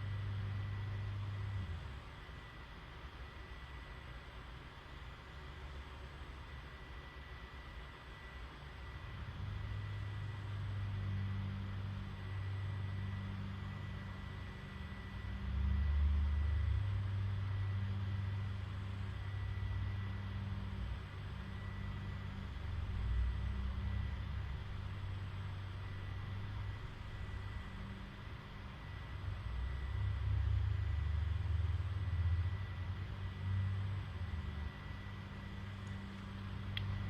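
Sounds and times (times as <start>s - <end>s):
low rumbling motor hum: 8.8s - 37.0s.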